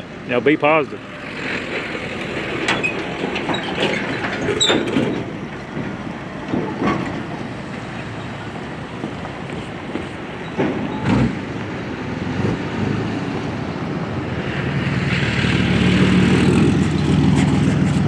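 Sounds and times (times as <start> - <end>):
heavy vehicle rumbling past: 0.0 - 18.0
clanks and rattles: 1.3 - 11.4.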